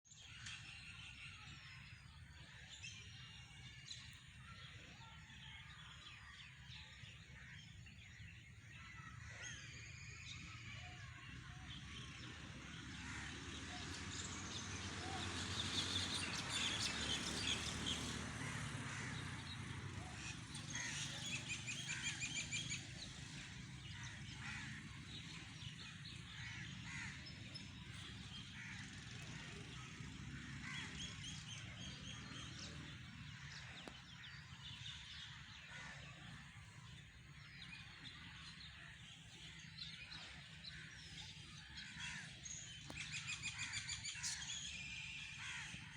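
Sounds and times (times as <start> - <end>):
birds calling: 15.0 - 45.9.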